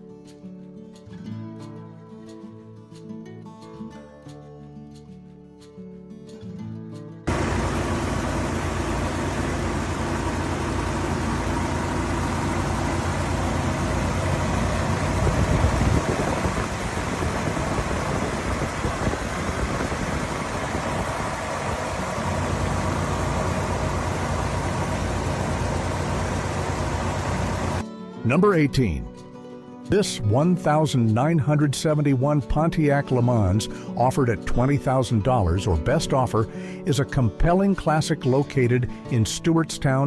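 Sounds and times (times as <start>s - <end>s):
car engine idling: 7.3s - 27.8s.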